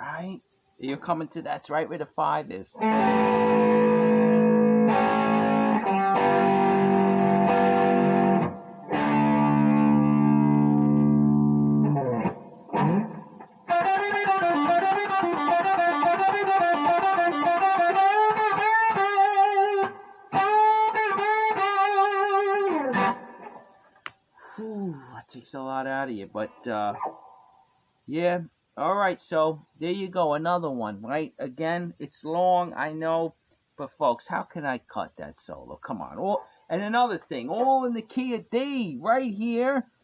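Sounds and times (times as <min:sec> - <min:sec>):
distorted electric guitar blues solo: 0:02.8 - 0:23.8.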